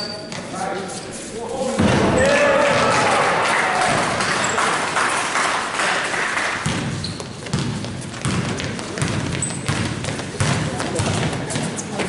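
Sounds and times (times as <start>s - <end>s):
sneaker squeaks: 0.0s - 2.3s, 6.6s - 12.0s
basketball bouncing on hardwood: 6.6s - 11.7s.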